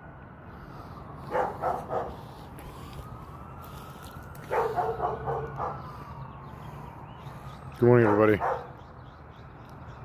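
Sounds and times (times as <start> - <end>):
bark-like animal calls: 1.3 - 2.2, 4.5 - 5.8, 8.0 - 8.8.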